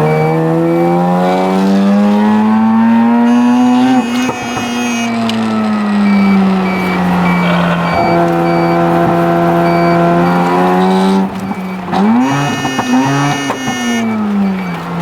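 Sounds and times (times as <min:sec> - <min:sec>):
rotary engine revving high: 0:00.0 - 0:15.0
high repeating beep: 0:06.0 - 0:14.8.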